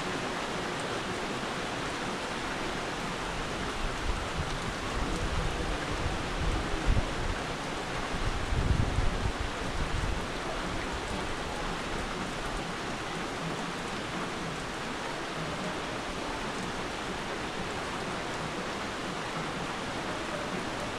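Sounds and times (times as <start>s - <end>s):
heavy rain hissing: 0.0s - 20.9s
wind buffeting microphone: 8.0s - 10.7s.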